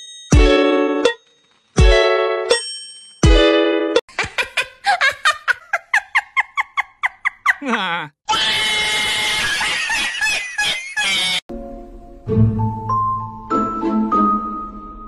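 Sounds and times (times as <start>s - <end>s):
loud scream-like noise: 8.3s - 9.7s.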